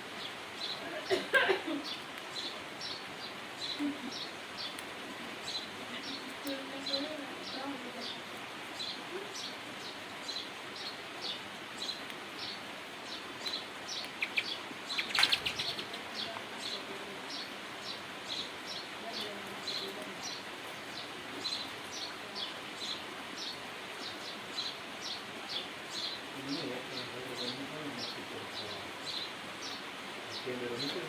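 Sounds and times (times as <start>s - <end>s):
background hiss: 0.0s - 31.0s
bird chirping: 8.8s - 31.0s.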